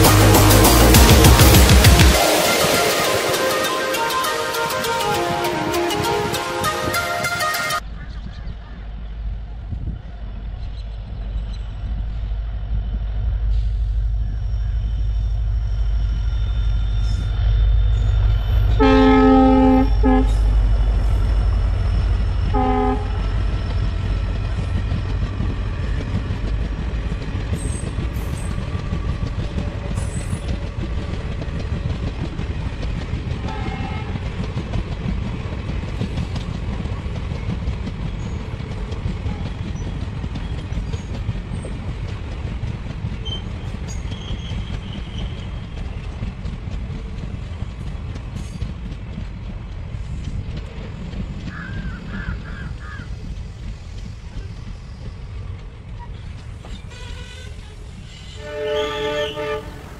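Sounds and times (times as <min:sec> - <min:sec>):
train horn blasts: 0:00.0 - 0:07.8, 0:18.6 - 0:21.1, 0:22.1 - 0:23.5, 0:33.4 - 0:34.3, 0:56.8 - 0:59.9
train rumbling along rails: 0:00.0 - 0:59.9.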